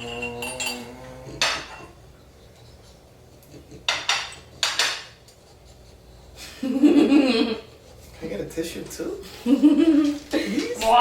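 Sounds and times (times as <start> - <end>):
dishes and cutlery clattering: 0.0 - 2.0, 3.8 - 5.2.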